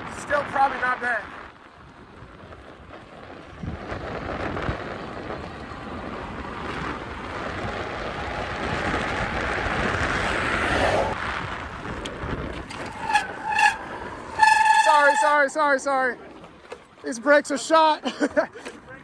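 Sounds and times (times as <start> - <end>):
wind rushing over microphone: 0.0 - 15.9
electric bike road noise: 0.0 - 17.9
bike brakes squealing: 12.7 - 15.8.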